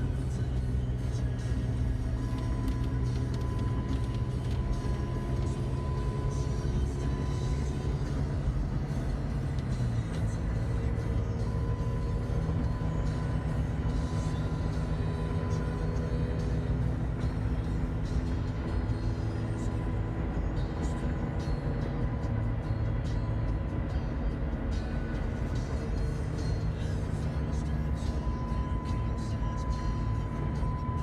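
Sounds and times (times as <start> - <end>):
car engine hum and road rumble: 0.0 - 31.0
music playing: 0.0 - 31.0.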